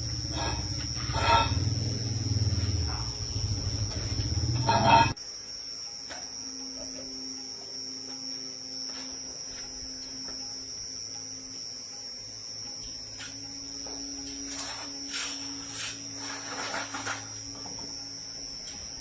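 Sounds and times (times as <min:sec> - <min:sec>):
motorcycle engine running: 0:00.0 - 0:05.2
steady hum: 0:00.0 - 0:19.0.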